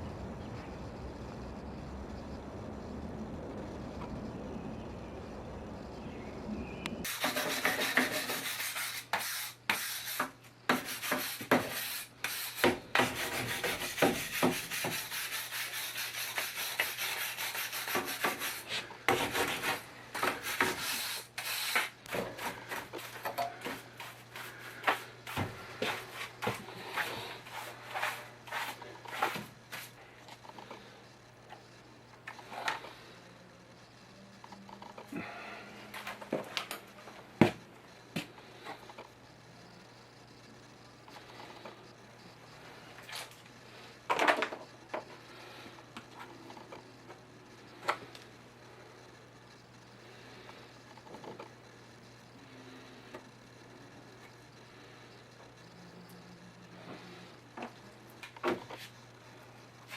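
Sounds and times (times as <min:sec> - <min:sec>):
faint low hum: 0:00.0 - 0:07.1, 0:22.0 - 0:59.9.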